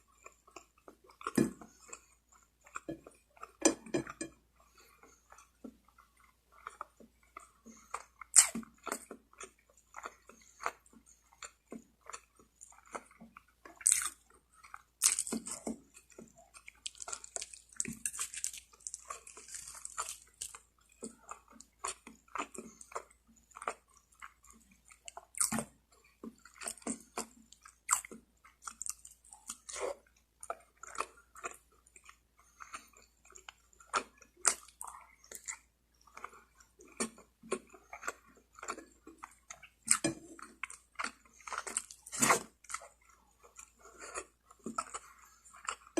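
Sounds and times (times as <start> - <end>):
chewing and biting: 0.0 - 45.9.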